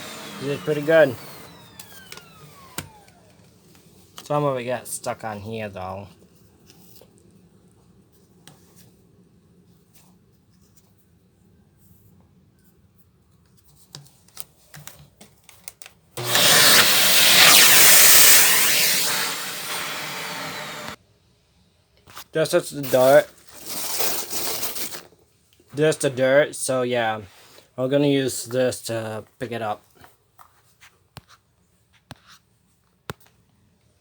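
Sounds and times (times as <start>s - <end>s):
vacuum cleaner running: 0.0s - 3.5s, 16.2s - 21.0s.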